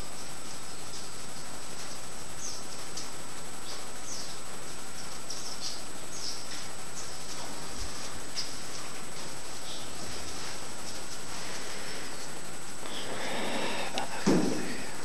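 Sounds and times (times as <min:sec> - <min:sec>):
steady hiss: 0:00.0 - 0:15.0
small birds chirping: 0:00.5 - 0:07.4, 0:09.5 - 0:10.1.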